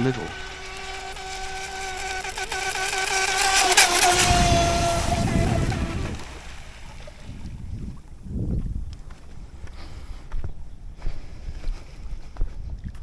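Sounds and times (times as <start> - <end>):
electric boat motor whining: 0.0 - 7.6
rushing wind and water: 0.3 - 10.3.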